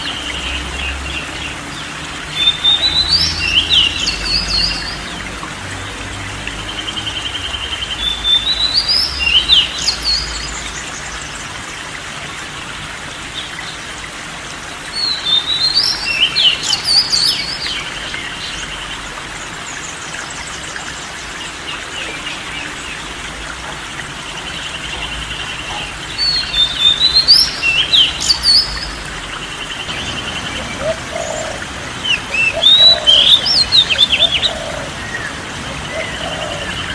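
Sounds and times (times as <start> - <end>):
songbird whistling and trilling: 32.4 - 34.4.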